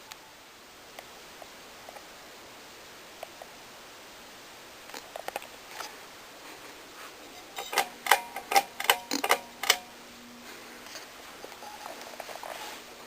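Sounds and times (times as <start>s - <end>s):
sharp clicks and clacks: 7.6s - 9.8s.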